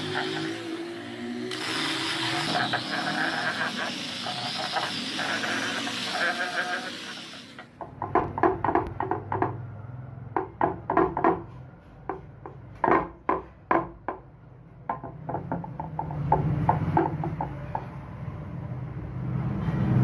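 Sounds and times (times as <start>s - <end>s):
sharp knocks and taps: 7.8s - 9.6s, 10.4s - 14.3s, 14.9s - 17.9s.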